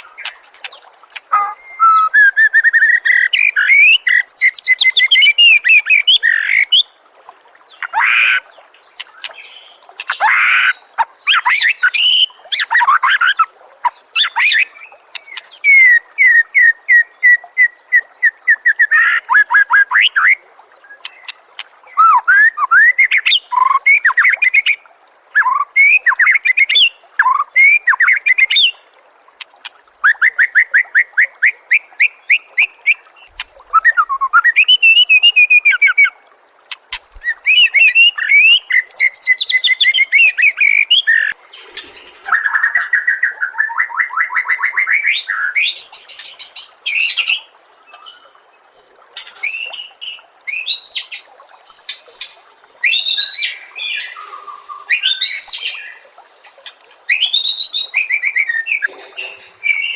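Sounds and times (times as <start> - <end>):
bird singing varied song: 0.0 - 6.9, 37.1 - 59.9.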